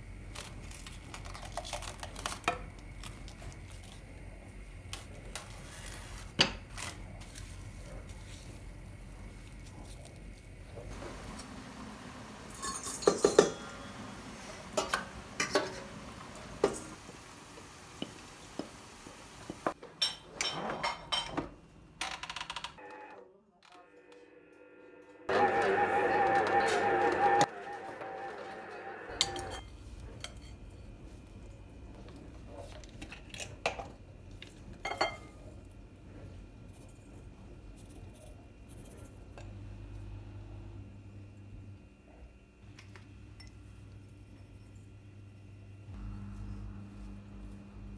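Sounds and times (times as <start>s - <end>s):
kitchenware clatter: 12.4s - 17.0s, 19.6s - 21.6s, 29.1s - 30.6s, 34.8s - 35.4s
dishes and cutlery clinking: 12.5s - 14.0s, 20.0s - 21.5s, 29.2s - 30.7s, 34.8s - 35.4s.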